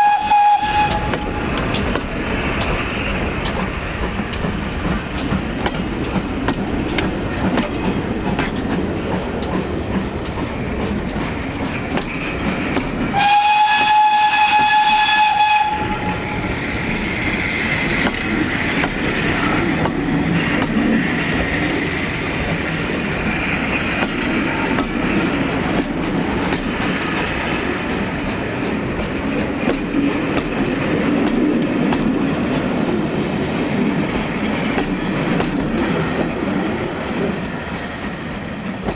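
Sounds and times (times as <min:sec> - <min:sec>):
train whistle: 0:00.0 - 0:01.8, 0:13.1 - 0:16.6
train rumble and wheel clatter: 0:00.0 - 0:38.9.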